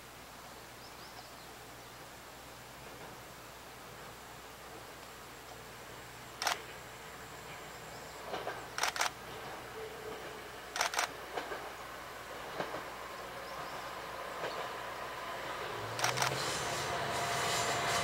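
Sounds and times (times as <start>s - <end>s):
diesel railcar running: 5.6s - 18.0s
sharp wheel clicks: 8.8s - 9.1s.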